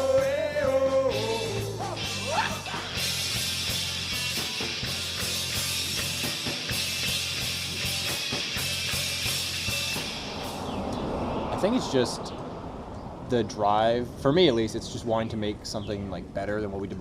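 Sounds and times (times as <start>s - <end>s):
rock music drum kit: 0.0s - 10.7s
bass line: 0.0s - 11.2s.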